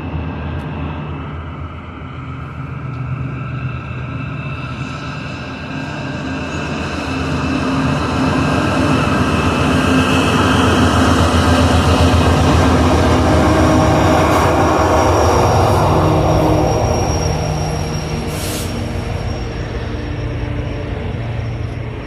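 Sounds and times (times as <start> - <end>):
train passing: 0.0 - 22.0
wheels squealing on rail: 3.1 - 22.0.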